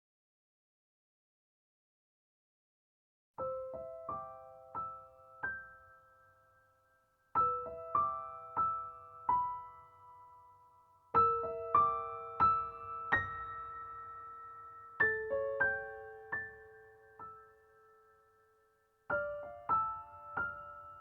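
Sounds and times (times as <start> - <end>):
gentle solo piano: 3.4 - 21.0.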